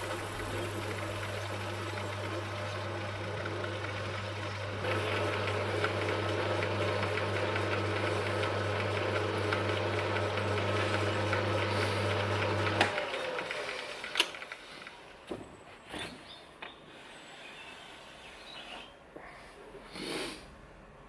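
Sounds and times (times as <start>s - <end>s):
lathe motor hum: 0.0s - 15.0s.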